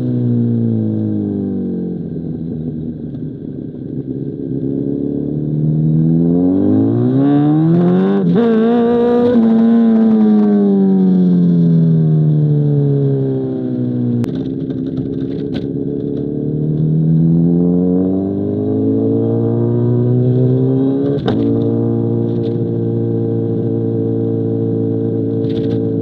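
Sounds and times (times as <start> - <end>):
motorcycle engine revs: 4.4 - 11.0, 14.4 - 26.0.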